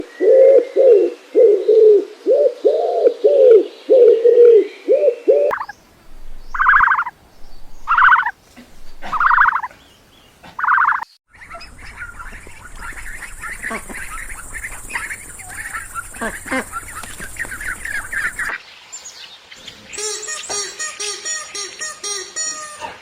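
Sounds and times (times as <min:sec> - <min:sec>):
higher animal calls: 0:05.5 - 0:09.7, 0:10.5 - 0:11.1
short low animal calls: 0:07.9 - 0:09.7.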